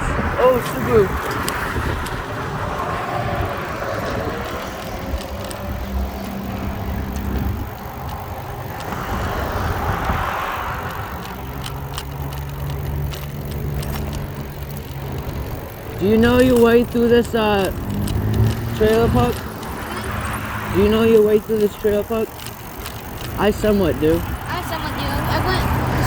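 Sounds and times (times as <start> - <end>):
bicycle rattles and ticks: 0.0 - 26.0
passing car traffic: 0.0 - 26.0
road and wind noise: 0.0 - 26.0.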